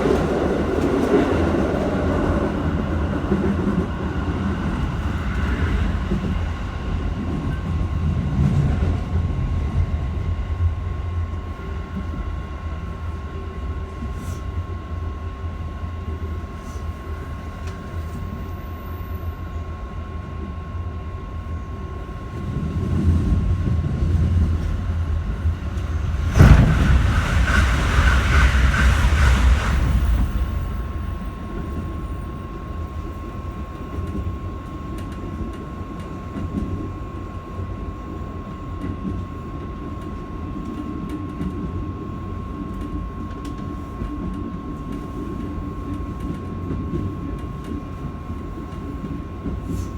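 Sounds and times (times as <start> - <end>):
train wheel and track rumble: 0.0 - 49.9
loud rush of noise: 25.0 - 31.5.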